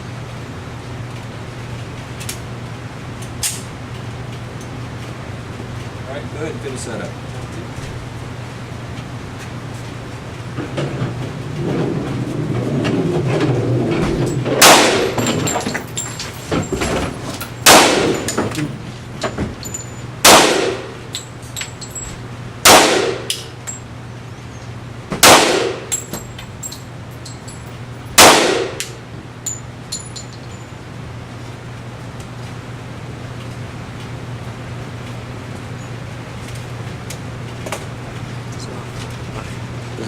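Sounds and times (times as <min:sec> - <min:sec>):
pistol shots: 0:14.6 - 0:15.2, 0:17.6 - 0:18.3, 0:20.2 - 0:20.9, 0:22.6 - 0:23.4, 0:25.2 - 0:25.9, 0:28.2 - 0:29.0
light clinks: 0:15.0 - 0:20.1, 0:21.1 - 0:22.2, 0:25.9 - 0:28.2, 0:29.4 - 0:30.8.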